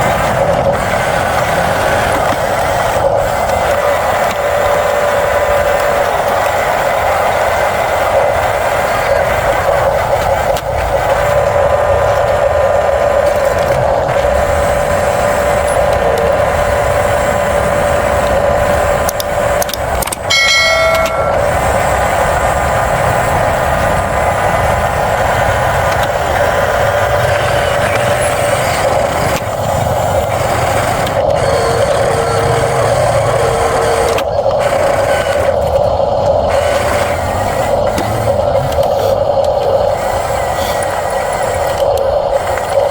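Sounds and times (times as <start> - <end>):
toy machines mechanical whine: 0.0 - 42.9
ringing chime-like tone: 20.3 - 21.8.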